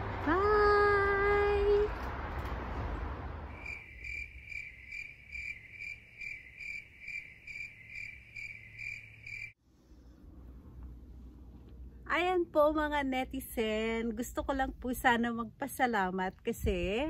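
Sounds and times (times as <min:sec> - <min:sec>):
woman saying bye: 0:00.2 - 0:01.9
crickets chirping: 0:03.5 - 0:09.6.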